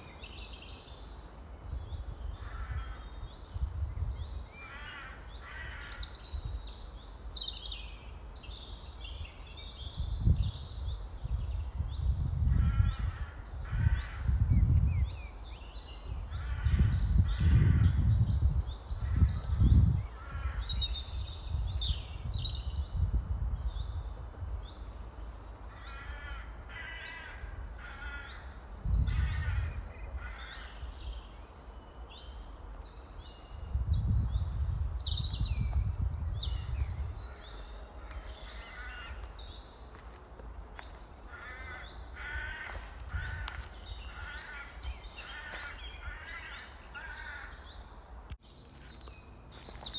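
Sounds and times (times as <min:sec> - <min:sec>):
harsh cawing calls: 0:04.6 - 0:05.9, 0:25.7 - 0:30.8, 0:37.5 - 0:39.3, 0:40.8 - 0:47.6
low rumbling gusts: 0:10.0 - 0:15.3, 0:16.1 - 0:24.6, 0:33.1 - 0:39.8.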